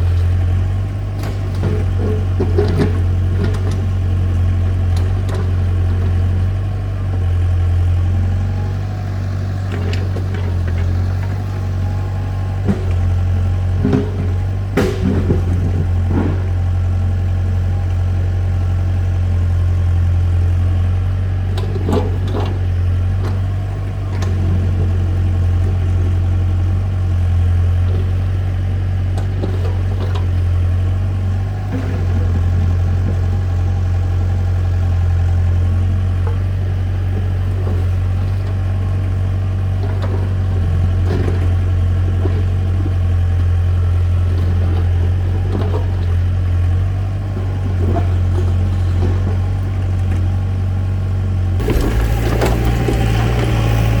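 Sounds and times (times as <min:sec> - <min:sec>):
tractor engine idling: 0:00.0 - 0:54.0
knocks and clatters: 0:13.8 - 0:16.6, 0:51.6 - 0:54.0.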